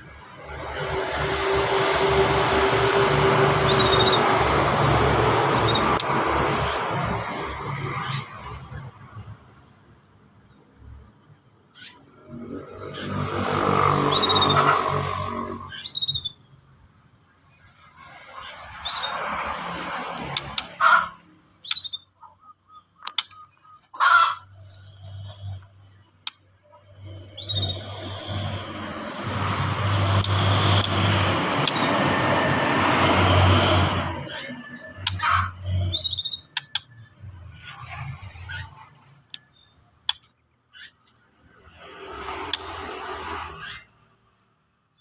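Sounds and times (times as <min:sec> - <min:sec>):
rushing noise: 0:00.0 - 0:09.0, 0:26.8 - 0:36.0
vehicle passing: 0:00.0 - 0:09.8, 0:12.1 - 0:15.8, 0:17.6 - 0:21.6, 0:24.0 - 0:39.3, 0:41.3 - 0:44.3
songbird chirping: 0:20.4 - 0:28.2.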